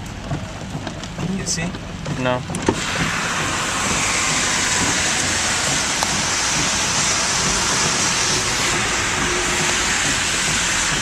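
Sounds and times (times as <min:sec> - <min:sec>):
steady rain hiss: 0:02.8 - 0:11.0.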